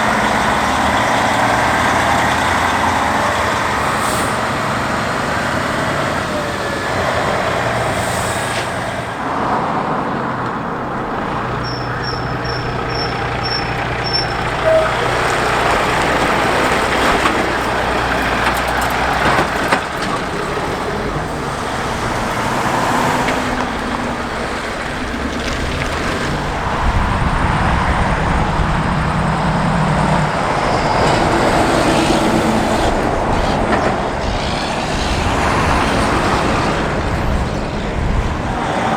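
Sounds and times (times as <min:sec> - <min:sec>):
traffic noise: 0:00.0 - 0:38.9
truck diesel engine running: 0:00.0 - 0:38.9
short high beeps: 0:11.6 - 0:15.1.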